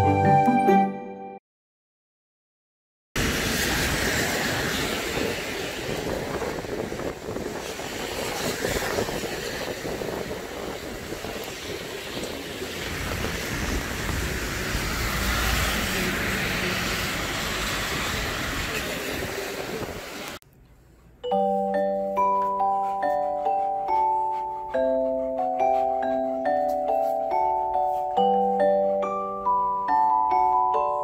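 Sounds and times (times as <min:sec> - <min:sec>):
rain hissing: 0:03.2 - 0:20.4
wet street noise: 0:03.2 - 0:20.4.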